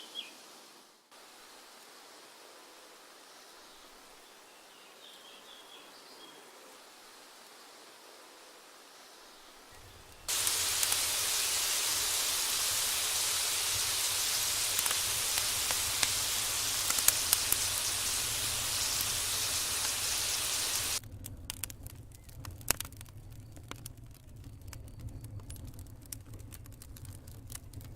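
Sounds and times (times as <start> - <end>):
faint crackles: 9.4 - 27.9
food sizzling in hot oil: 10.2 - 21.0.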